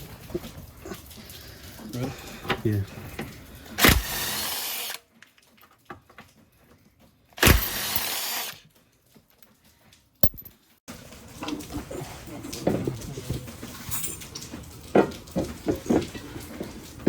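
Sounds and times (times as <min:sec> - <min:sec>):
cordless power tool whirring: 0:03.8 - 0:05.0, 0:07.4 - 0:08.6.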